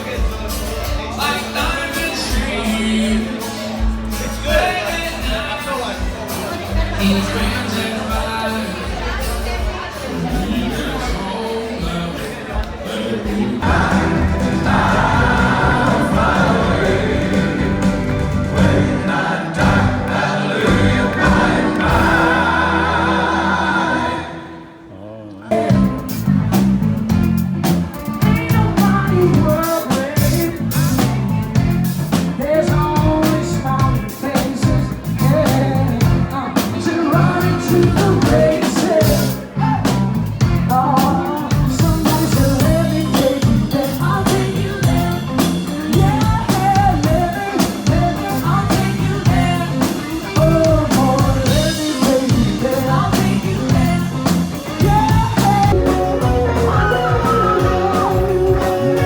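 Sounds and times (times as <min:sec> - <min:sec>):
band music with guitar and drums: 0:00.0 - 0:24.9, 0:25.5 - 0:59.0.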